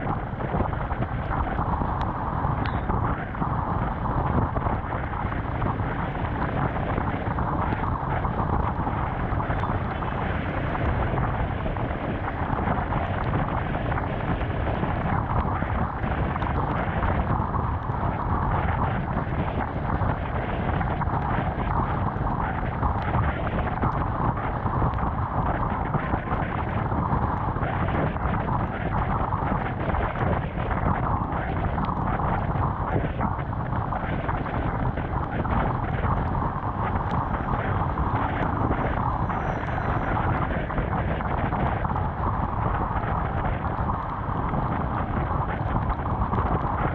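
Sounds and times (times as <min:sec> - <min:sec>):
wind rushing over camera: 0:00.0 - 0:46.9.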